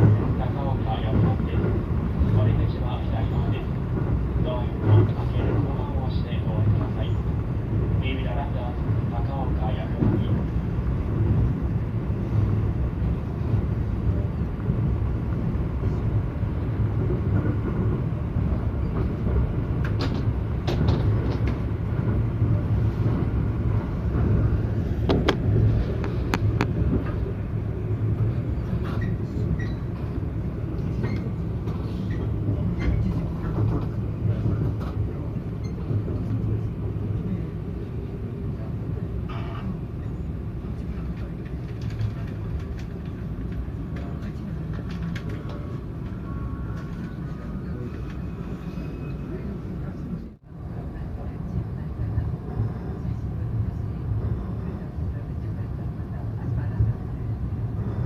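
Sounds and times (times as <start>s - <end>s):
train rumbling on rails: 0.0s - 58.0s.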